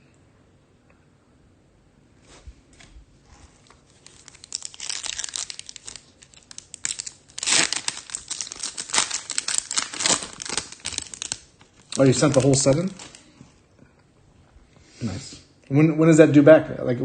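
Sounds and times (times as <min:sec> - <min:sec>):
foil wrapper crinkling: 0:03.6 - 0:13.3
wrapper tearing: 0:03.6 - 0:13.3.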